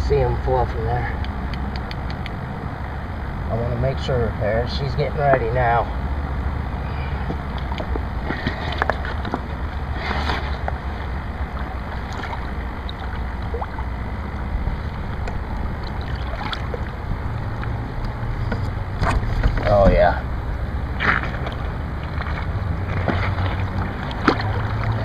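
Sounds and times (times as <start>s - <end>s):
river water rushing: 5.9s - 25.0s
light water splashes: 11.4s - 18.1s, 21.0s - 25.0s.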